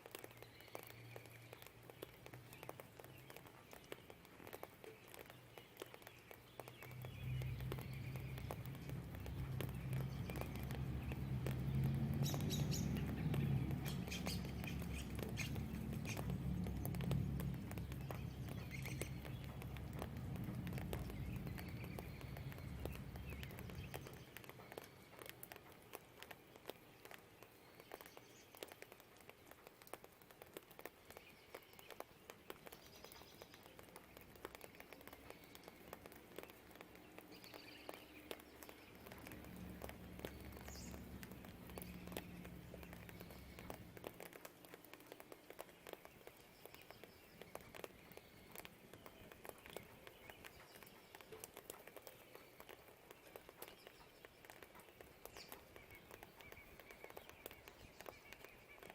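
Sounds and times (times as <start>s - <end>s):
light rain pattering: 0.0s - 58.9s
bird chirps: 0.2s - 28.8s, 31.1s - 58.9s
low distant rumble: 7.0s - 24.6s.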